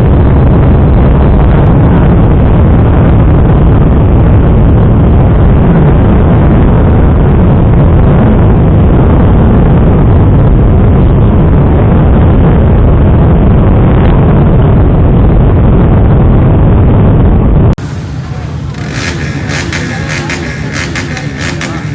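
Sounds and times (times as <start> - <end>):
wind rushing over microphone: 0.0 - 21.9
motorcycle engine: 17.8 - 21.9.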